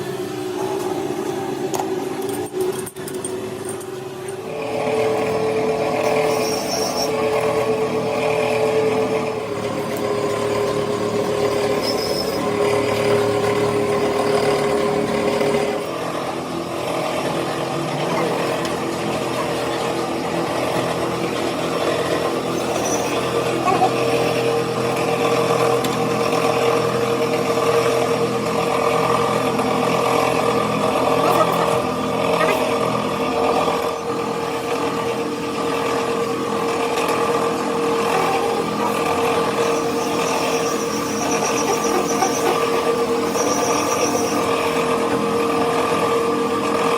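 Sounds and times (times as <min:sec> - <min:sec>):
machine motor humming: 0:00.0 - 0:46.9.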